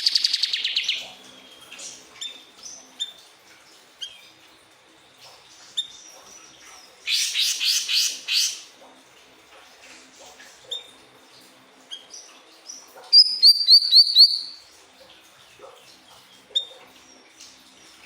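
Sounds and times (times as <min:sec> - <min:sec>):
bird singing: 0:13.1 - 0:14.6.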